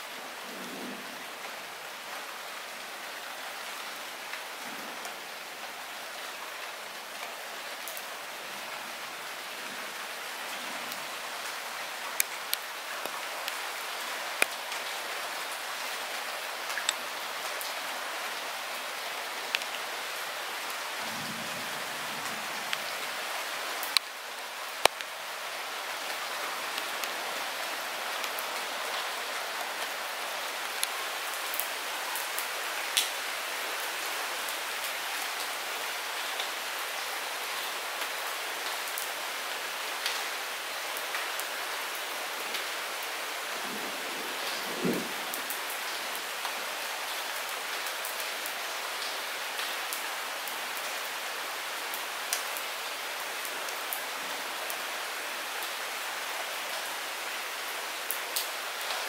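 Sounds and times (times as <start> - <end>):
light rain hissing: 0.0 - 59.0
raindrops ticking close by: 3.3 - 37.0, 51.9 - 54.8, 58.0 - 59.0.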